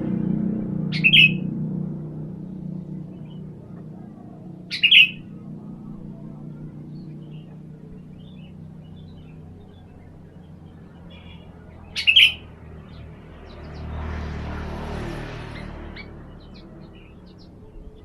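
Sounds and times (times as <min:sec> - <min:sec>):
low hum: 0:00.0 - 0:18.0
bird short sharp calls: 0:00.9 - 0:01.4, 0:04.0 - 0:05.4, 0:11.0 - 0:12.5.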